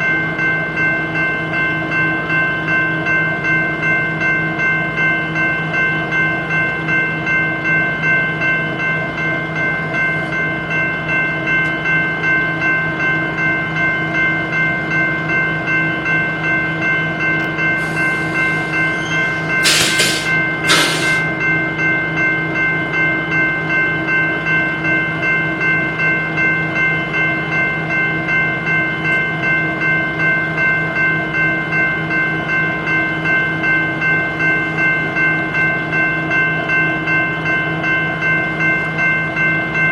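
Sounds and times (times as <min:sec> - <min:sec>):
diesel locomotive idling: 0:14.4 - 0:21.6
short loud hisses: 0:17.8 - 0:21.2.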